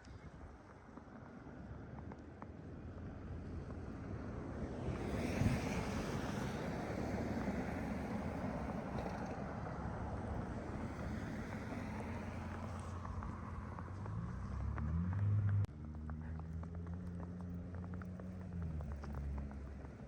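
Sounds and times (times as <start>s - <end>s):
wind rumble on microphone: 0.0s - 15.7s.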